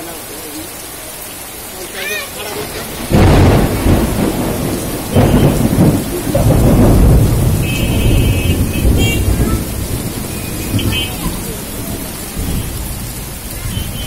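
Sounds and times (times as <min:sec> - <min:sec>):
heavy rain pouring: 0:00.0 - 0:14.0
loud low rumble: 0:03.1 - 0:11.0.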